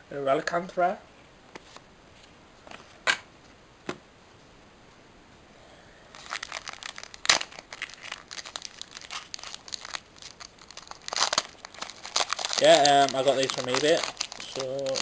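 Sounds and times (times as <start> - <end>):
foil wrapper crinkling: 6.2 - 15.0
foil wrapper ripping: 6.2 - 15.0.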